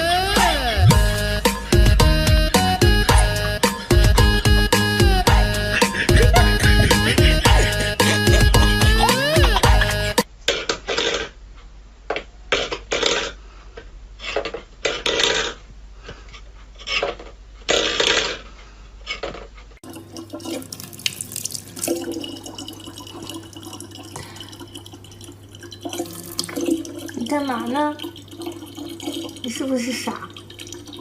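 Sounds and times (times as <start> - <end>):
low hum: 0.0 - 10.2
water splashing: 19.8 - 31.0.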